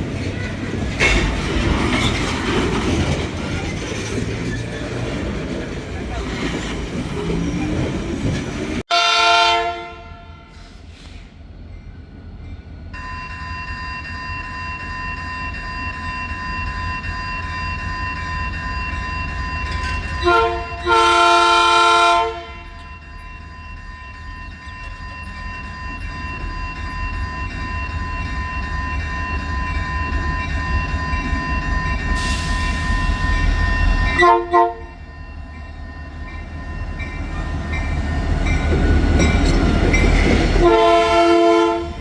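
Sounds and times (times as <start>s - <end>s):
low rumble of passing train: 0.0s - 42.0s
locomotive air horn blasts: 8.9s - 10.8s, 20.2s - 22.7s, 34.1s - 35.0s, 40.6s - 42.0s.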